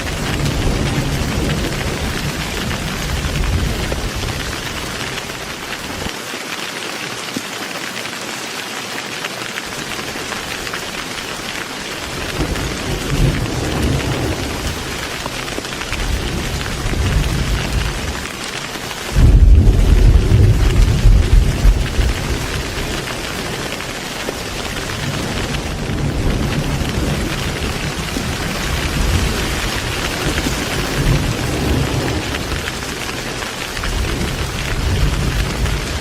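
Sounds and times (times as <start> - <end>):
heavy rain falling: 0.0 - 36.0
distant thunder rolling: 12.1 - 18.2, 19.1 - 36.0
loud thunder crack: 19.1 - 23.0.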